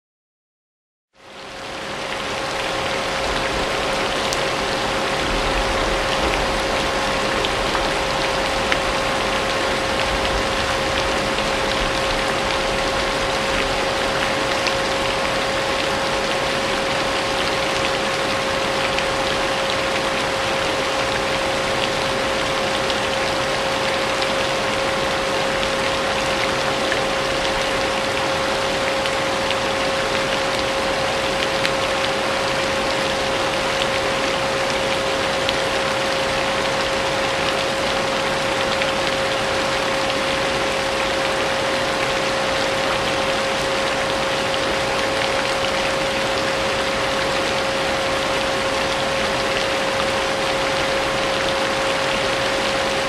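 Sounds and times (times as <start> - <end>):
steady rain: 1.2 - 53.0.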